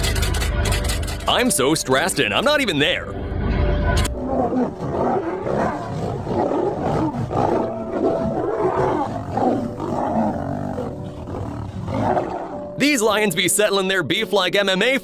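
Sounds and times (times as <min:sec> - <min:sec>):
lions roaring: 0:03.3 - 0:12.8.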